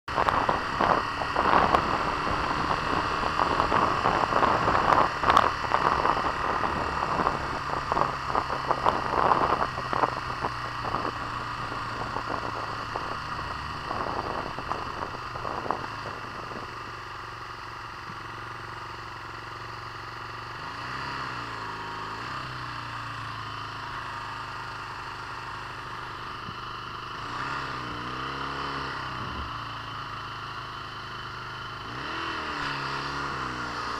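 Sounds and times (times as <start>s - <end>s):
motorcycle engine: 0.0s - 33.9s
wind noise on microphone: 0.1s - 17.0s.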